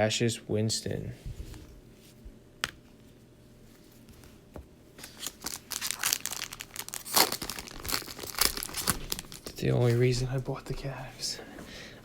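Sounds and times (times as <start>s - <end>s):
plastic wrapper crinkling: 5.0s - 9.6s.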